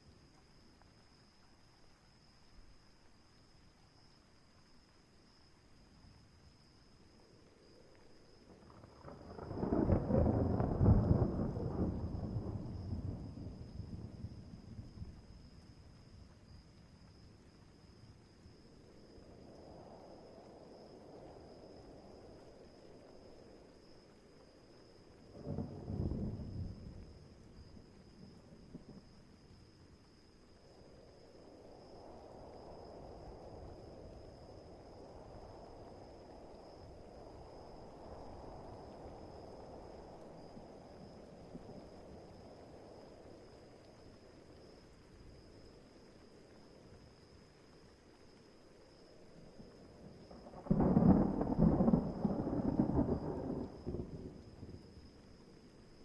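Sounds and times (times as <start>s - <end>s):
crickets trilling: 0.0s - 56.0s
rain and wind rushing: 6.6s - 17.2s, 18.5s - 29.3s, 30.1s - 56.0s
thunder rumble: 8.6s - 15.4s, 25.2s - 29.1s, 49.6s - 55.1s.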